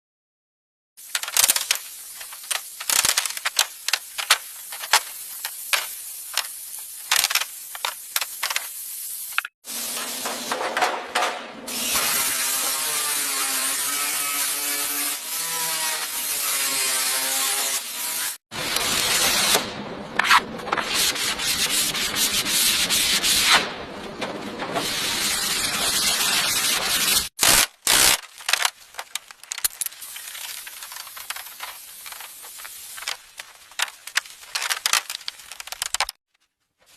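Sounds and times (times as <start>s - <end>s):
sanding car panels: 20.8s - 27.3s.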